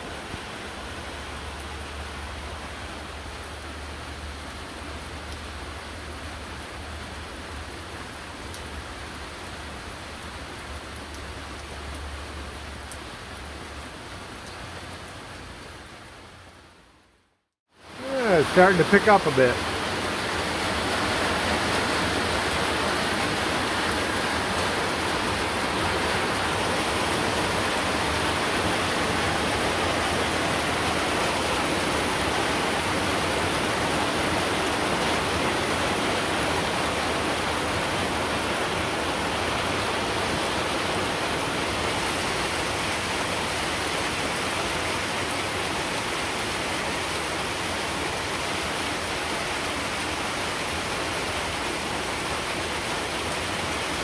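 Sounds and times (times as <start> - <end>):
heavy rain hiss: 17.7 - 54.0.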